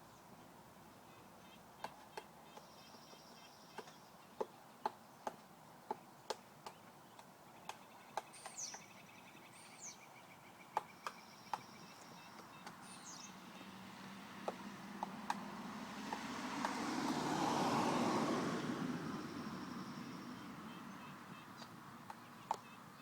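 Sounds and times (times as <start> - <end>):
woodpecker tapping: 1.8 - 17.8, 19.2 - 23.0
high downward-sweeping bird calls: 7.5 - 14.8, 19.1 - 23.0.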